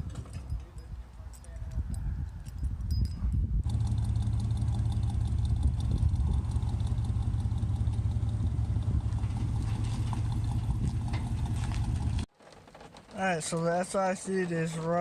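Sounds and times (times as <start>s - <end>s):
car engine running: 3.6s - 12.3s.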